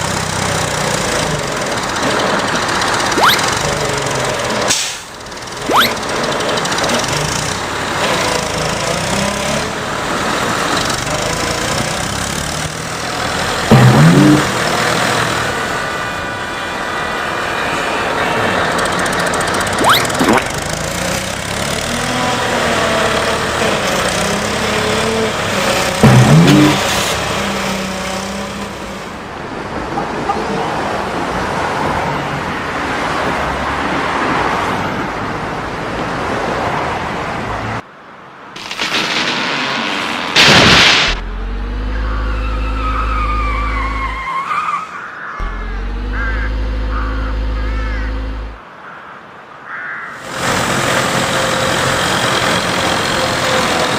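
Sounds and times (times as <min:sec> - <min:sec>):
cartoon engine noise: 0:03.0 - 0:04.2, 0:05.6 - 0:06.2, 0:13.7 - 0:14.8, 0:19.6 - 0:20.7, 0:26.0 - 0:27.0, 0:39.9 - 0:44.3, 0:45.4 - 0:48.6
sharp hits: 0:13.7 - 0:14.8, 0:26.0 - 0:26.9, 0:38.6 - 0:42.5
loud whooshes: 0:38.8 - 0:41.3
steady low tones: 0:41.1 - 0:43.2, 0:45.4 - 0:48.6.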